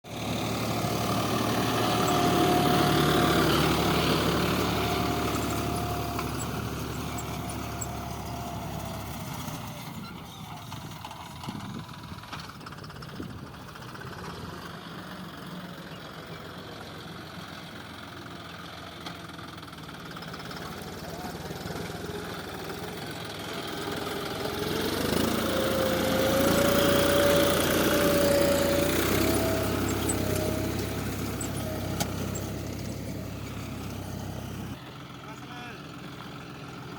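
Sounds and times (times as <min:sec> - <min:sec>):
tractor diesel engine running: 0:00.0 - 0:36.9.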